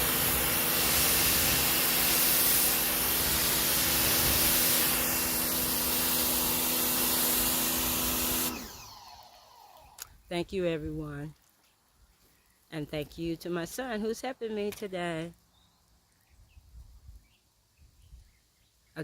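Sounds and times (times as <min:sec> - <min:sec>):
high-pressure water jet hissing: 0:00.0 - 0:09.9
pump motor hum: 0:00.0 - 0:10.1.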